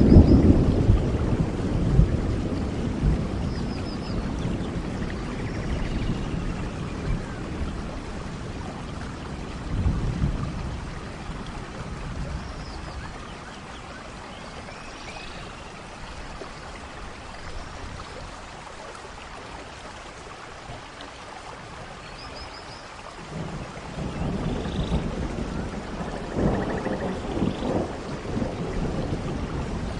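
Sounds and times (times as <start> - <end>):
low rumble of thunder: 0.0 - 13.9, 23.2 - 29.9
rain falling: 0.0 - 29.9.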